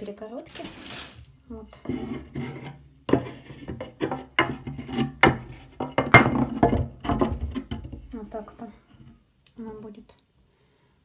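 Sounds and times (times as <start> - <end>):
tools rattling clatter: 3.8 - 8.1.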